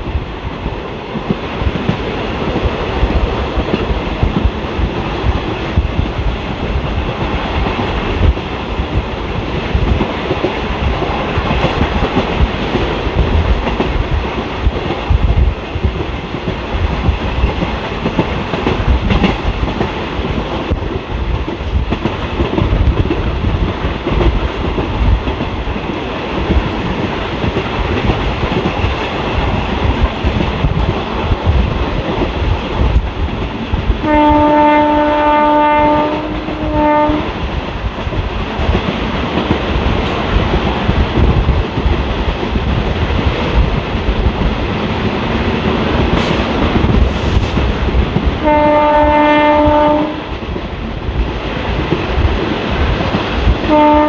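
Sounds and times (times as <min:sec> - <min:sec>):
train rumble and wheel clatter: 0:00.0 - 0:54.0
locomotive horn: 0:34.0 - 0:37.3, 0:48.4 - 0:50.3, 0:53.7 - 0:54.0.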